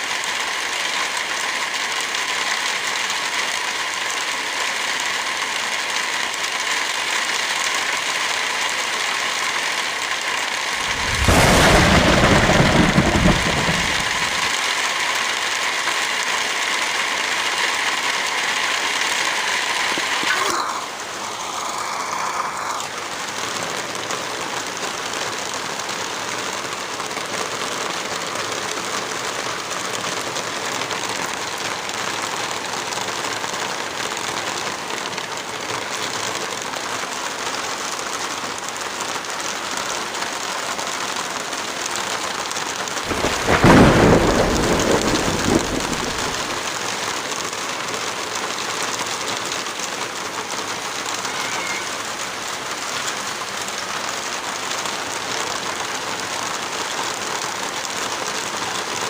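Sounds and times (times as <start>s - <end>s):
heavy rain falling: 0.0s - 59.0s
loud deep rumble: 10.8s - 14.6s, 43.1s - 46.6s.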